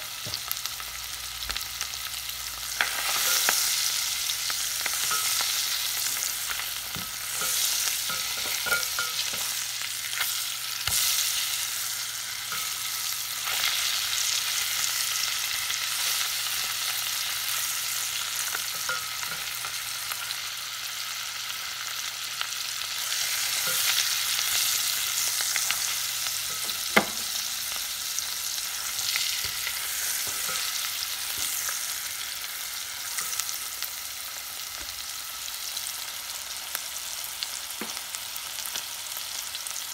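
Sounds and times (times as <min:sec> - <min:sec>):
fish searing in butter: 0:00.0 - 0:39.9
spatula scraping and knocking pot: 0:06.9 - 0:09.5.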